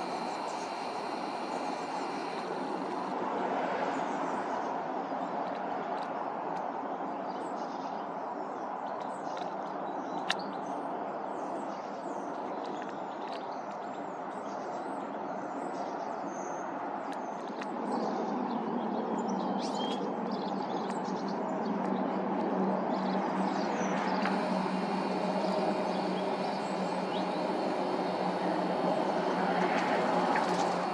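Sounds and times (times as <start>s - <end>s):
steady background rumble: 20.8s - 30.9s.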